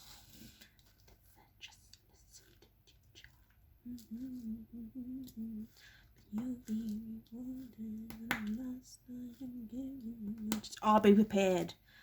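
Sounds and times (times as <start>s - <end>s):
woman humming: 3.8s - 5.7s.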